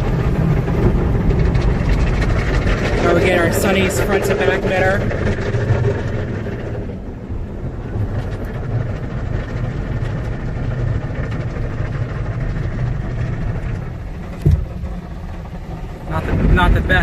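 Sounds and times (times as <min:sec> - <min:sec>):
car wash water and cloth washers: 0:00.0 - 0:17.0
thump: 0:14.4 - 0:14.9.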